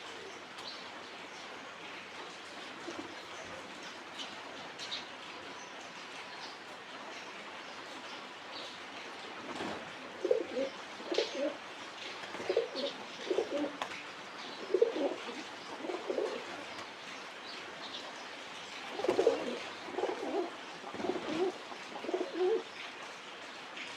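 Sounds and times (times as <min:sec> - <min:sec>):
pigeons cooing: 0:10.2 - 0:13.9, 0:14.6 - 0:16.8, 0:18.9 - 0:22.7.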